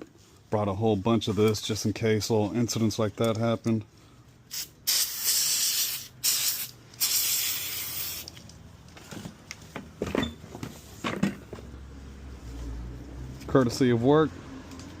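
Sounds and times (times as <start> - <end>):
aerosol can spraying: 4.5 - 8.4.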